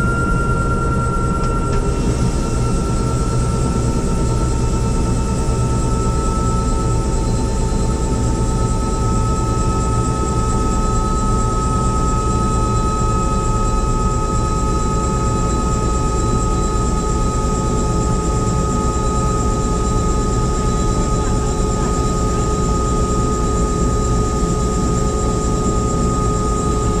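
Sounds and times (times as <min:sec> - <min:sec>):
helicopter engine and rotor drone: 0:00.0 - 0:27.0.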